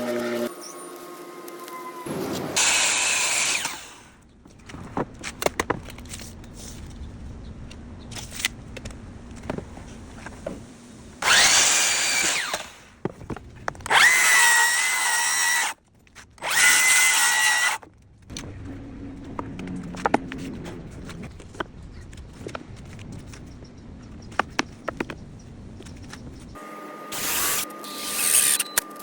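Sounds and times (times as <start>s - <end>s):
power drill whining: 2.6s - 4.2s, 11.2s - 12.9s, 13.9s - 15.8s, 16.4s - 17.8s, 27.1s - 29.0s.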